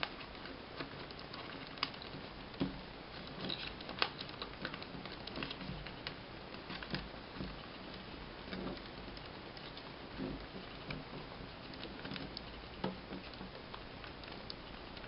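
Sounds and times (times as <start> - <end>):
paper crinkling: 3.2 - 8.1.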